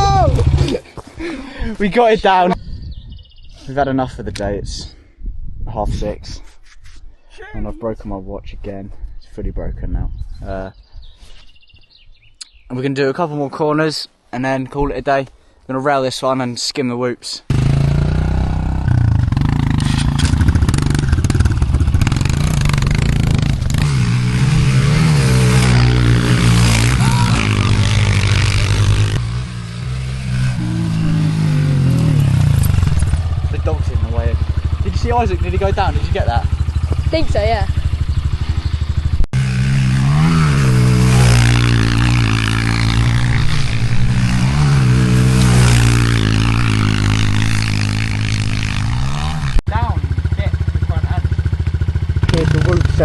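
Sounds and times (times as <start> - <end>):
motorbike engine revving: 17.5 - 53.0.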